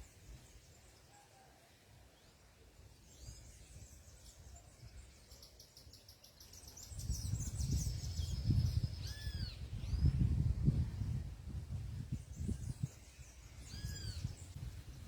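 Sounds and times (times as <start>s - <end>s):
wind buffeting microphone: 6.9s - 15.0s
whistled bird calls: 7.1s - 10.1s, 13.6s - 14.4s
small birds twittering: 12.3s - 15.0s.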